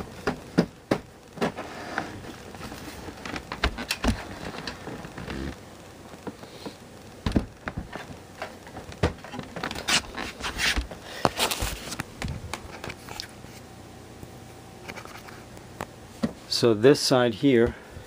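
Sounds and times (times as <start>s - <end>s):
faint steady hum: 0.0s - 18.0s
computer case clicks and knocks: 7.2s - 8.0s.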